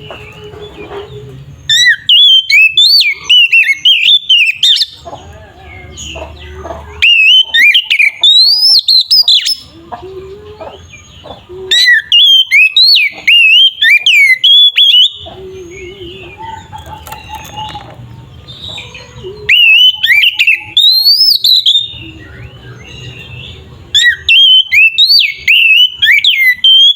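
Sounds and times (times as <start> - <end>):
bird singing whistled phrases: 1.7 - 5.0, 6.9 - 9.7, 11.7 - 17.9, 18.7 - 26.9.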